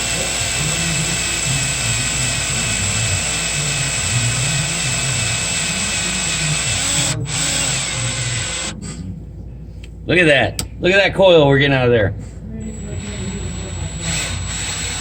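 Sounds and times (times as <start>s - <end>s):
power drill whining: 0.0s - 8.8s, 12.6s - 15.0s.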